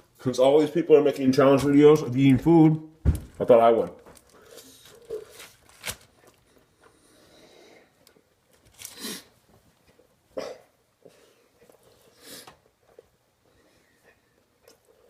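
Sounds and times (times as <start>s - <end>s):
person chewing food: 11.0s - 15.0s.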